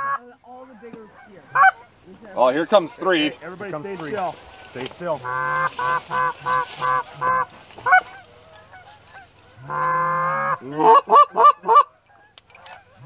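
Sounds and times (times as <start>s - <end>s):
goose honking: 0.0s - 13.0s.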